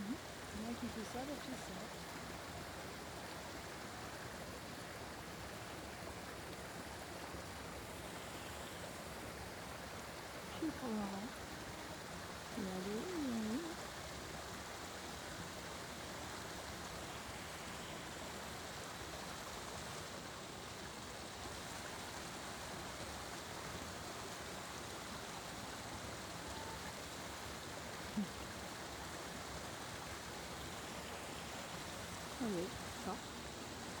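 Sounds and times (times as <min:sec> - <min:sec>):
running water rushing: 0:00.0 - 0:34.0.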